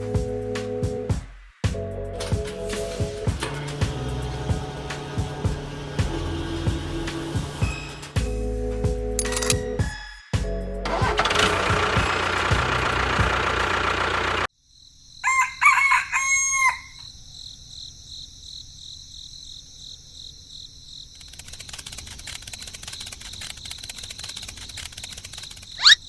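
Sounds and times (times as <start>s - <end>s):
rooster crowing: 15.2s - 17.1s
faint rapid ticking: 21.2s - 25.8s.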